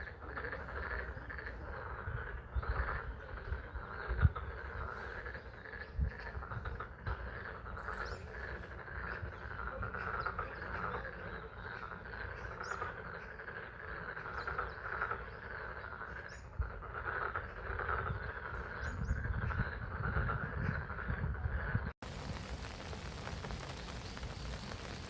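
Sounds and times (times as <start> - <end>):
frogs calling in chorus: 0.0 - 21.4
rain falling: 22.0 - 25.0.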